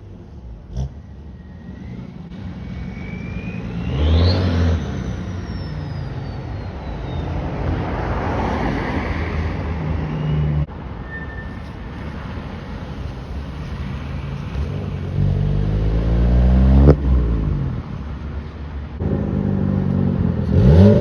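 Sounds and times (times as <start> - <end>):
high engine whine: 0.0 - 7.8, 9.5 - 20.9
car engine revving by: 0.7 - 6.1, 12.0 - 17.8.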